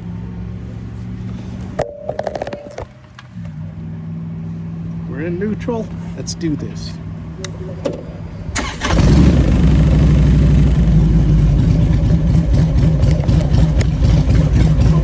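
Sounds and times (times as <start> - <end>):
motorcycle engine starting and idling: 7.6 - 15.0.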